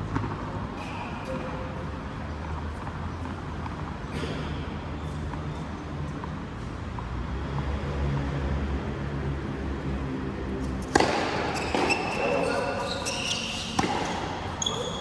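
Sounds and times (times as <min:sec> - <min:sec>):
racket striking ball: 0:10.8 - 0:15.0.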